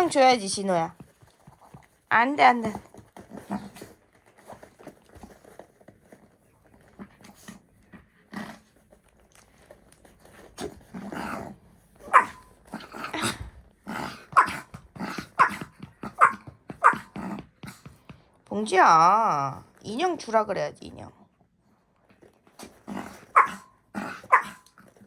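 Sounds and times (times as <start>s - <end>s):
dog growling: 2.7s - 4.0s, 6.8s - 8.9s, 10.5s - 17.9s, 22.6s - 25.0s
dog barking sharply: 12.1s - 12.5s, 15.4s - 15.6s, 16.2s - 17.1s, 23.4s - 23.7s, 24.3s - 24.6s.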